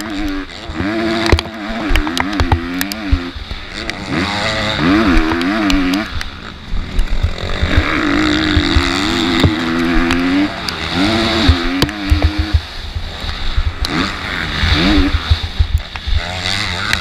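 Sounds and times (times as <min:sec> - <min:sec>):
motocross bike engine revving: 0:00.0 - 0:17.0
wind buffeting: 0:04.8 - 0:16.2
sharp knocks: 0:11.4 - 0:12.6.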